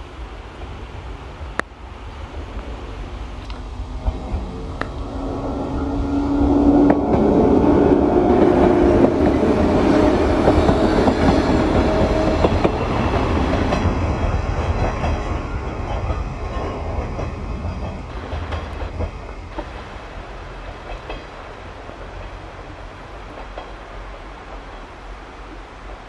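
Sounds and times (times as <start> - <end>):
electric train passing: 0.0 - 26.0
wheels clicking over rail joints: 6.8 - 19.8, 20.4 - 24.9.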